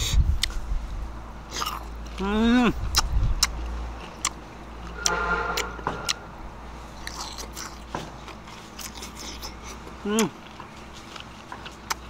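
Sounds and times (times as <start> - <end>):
mango being bitten and chewed: 0.0 - 12.0.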